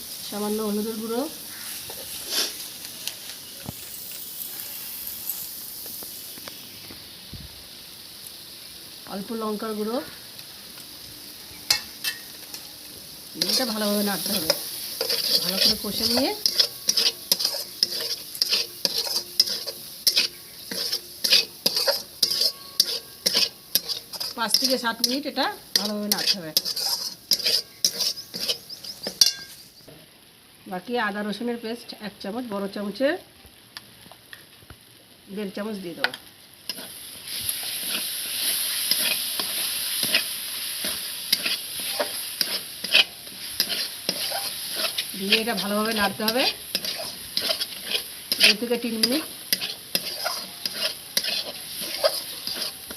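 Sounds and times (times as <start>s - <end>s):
spices sizzling in oil: 0.0s - 52.9s
utensil scraping a pan: 1.5s - 2.6s, 13.4s - 29.6s, 36.7s - 52.9s.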